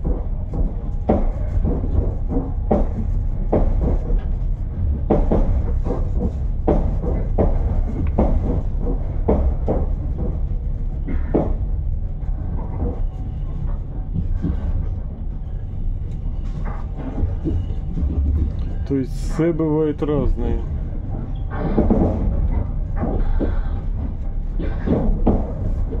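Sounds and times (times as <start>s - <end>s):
running gear knocks and clatter: 0.0s - 26.0s
train low rumble: 0.0s - 26.0s.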